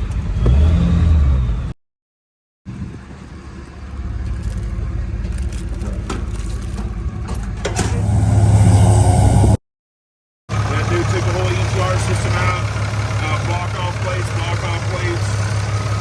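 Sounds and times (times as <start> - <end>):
car engine rumbling: 2.7 - 9.6, 10.5 - 16.0.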